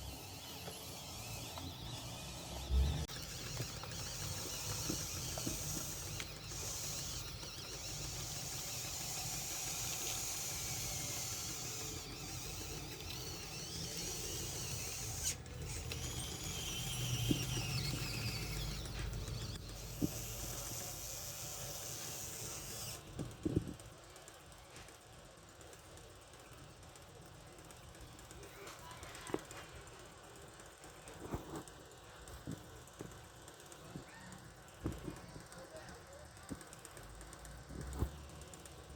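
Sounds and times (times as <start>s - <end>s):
electric motors whining: 0.0s - 23.6s.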